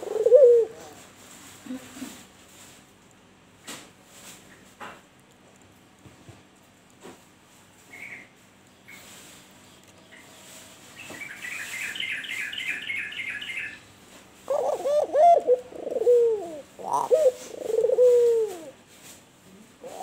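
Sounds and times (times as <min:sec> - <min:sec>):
dove cooing: 0:00.0 - 0:01.0, 0:14.4 - 0:18.8, 0:19.6 - 0:20.0
small bird chirping: 0:07.8 - 0:13.9.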